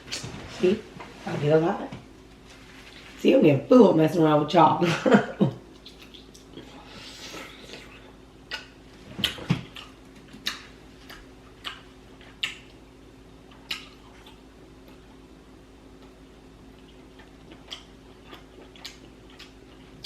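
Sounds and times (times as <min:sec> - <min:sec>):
faint steady hum: 0:00.0 - 0:20.0
wet mouth clicks and smacks: 0:05.8 - 0:06.6, 0:08.5 - 0:12.8, 0:13.5 - 0:14.4.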